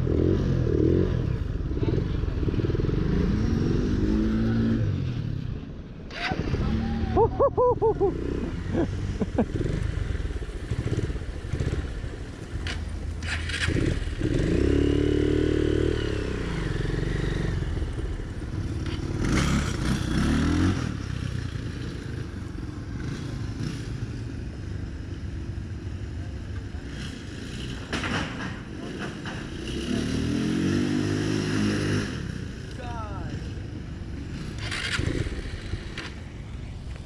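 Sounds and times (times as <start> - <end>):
person talking: 32.8 - 33.5.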